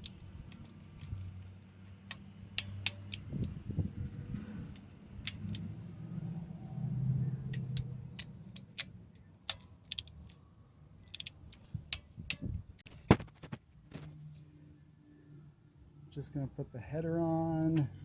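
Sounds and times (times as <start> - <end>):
sharp clicks: 0.0 - 3.6, 7.5 - 10.4.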